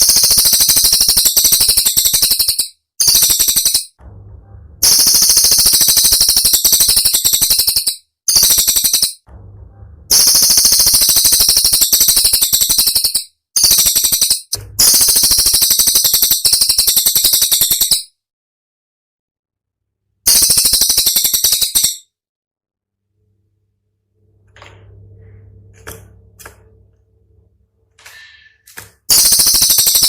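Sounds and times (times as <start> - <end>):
songbird rattling trills: 0.0 - 4.0, 4.8 - 9.2, 10.1 - 18.0, 20.3 - 22.0, 29.1 - 30.0.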